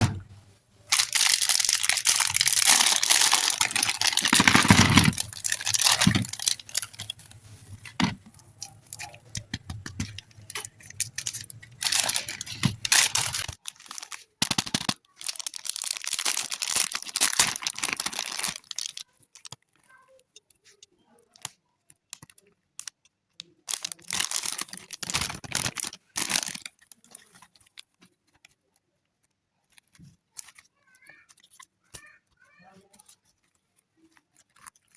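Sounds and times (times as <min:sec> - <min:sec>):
packaging tearing and crinkling: 0:00.9 - 0:19.6, 0:23.7 - 0:27.6.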